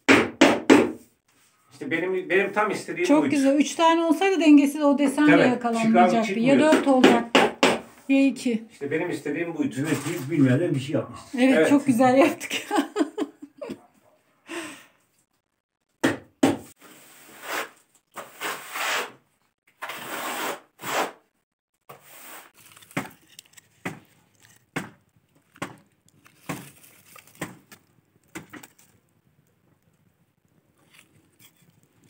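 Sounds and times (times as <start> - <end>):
sharp knocks of tiles: 0.0 - 1.0, 6.6 - 7.9, 16.0 - 16.7
tiles scraping: 9.7 - 10.6, 16.7 - 21.2, 21.9 - 29.1, 30.7 - 32.0.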